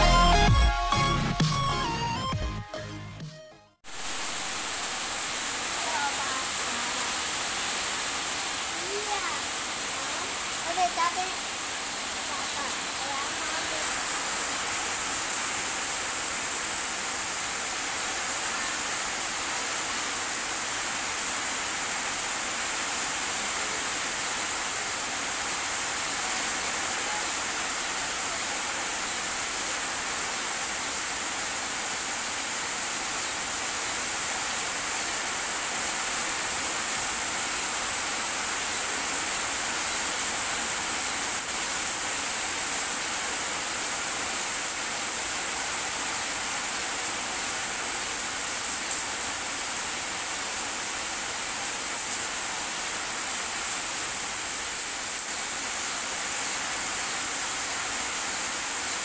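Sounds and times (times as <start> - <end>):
steady rain falling: 3.8 - 59.0.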